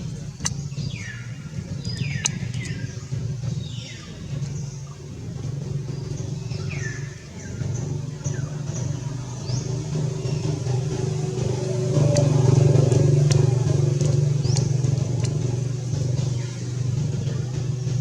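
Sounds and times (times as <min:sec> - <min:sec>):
low motor drone: 0:00.0 - 0:18.0.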